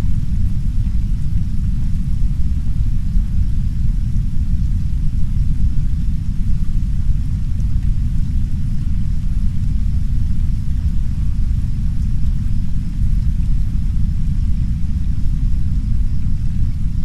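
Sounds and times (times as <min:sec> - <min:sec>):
brown noise rumble: 0:00.0 - 0:17.0
soft rain against window: 0:00.0 - 0:17.0.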